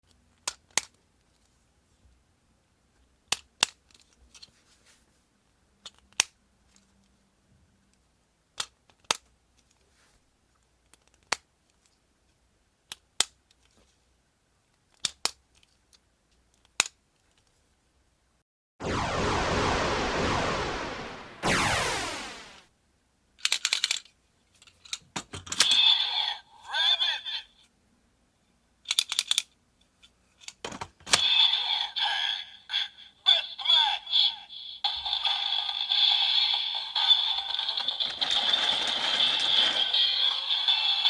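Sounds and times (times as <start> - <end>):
plastic toy parts clicking: 14.9 - 17.4, 23.4 - 25.6, 28.9 - 29.5.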